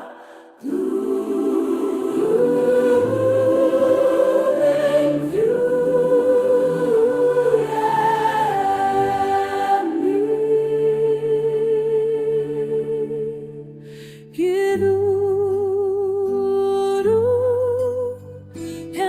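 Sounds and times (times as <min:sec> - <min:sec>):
wordless choir singing: 0:00.0 - 0:13.8.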